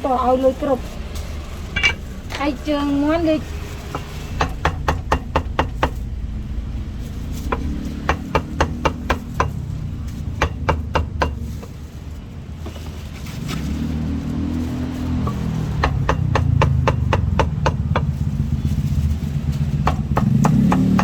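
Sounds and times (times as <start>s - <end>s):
low engine rumble: 0.0s - 21.0s
cleaver chopping meat: 7.5s - 9.6s, 19.7s - 21.0s.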